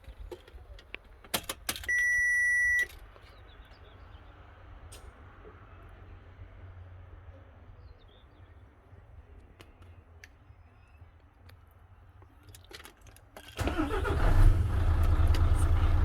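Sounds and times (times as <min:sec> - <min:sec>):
diesel engine firing: 0:13.4 - 0:16.0.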